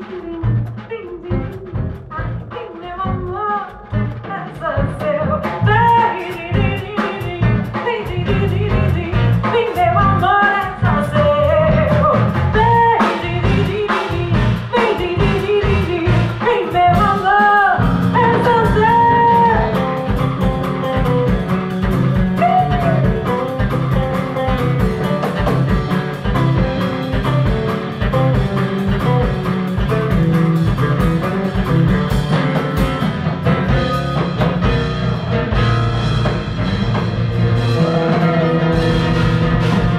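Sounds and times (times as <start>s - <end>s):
woman singing: 0.0s - 25.7s
live band playing: 0.0s - 39.9s
heavy bass line: 17.8s - 39.9s.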